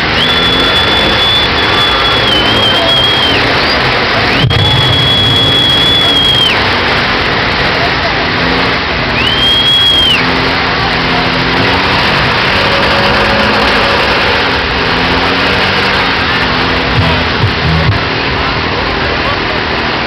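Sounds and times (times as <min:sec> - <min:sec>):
brief high whistle: 0:00.0 - 0:06.7, 0:09.2 - 0:10.4
truck engine and road noise: 0:00.0 - 0:20.0.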